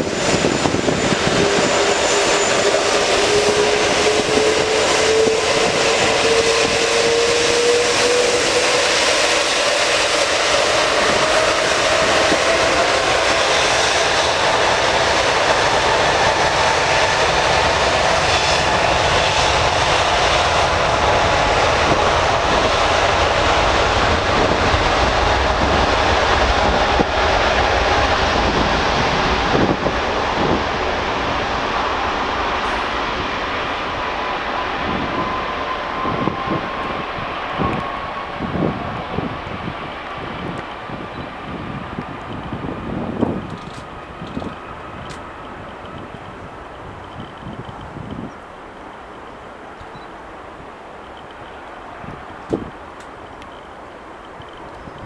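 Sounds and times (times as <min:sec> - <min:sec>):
jet engines at takeoff power: 0:00.0 - 0:55.0.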